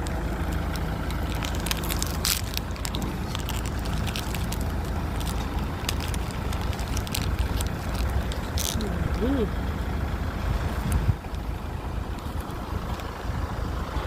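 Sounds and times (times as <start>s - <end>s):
crackling clicks: 0.0s - 9.2s, 12.1s - 13.2s
vehicle engine rumbling: 0.0s - 14.0s.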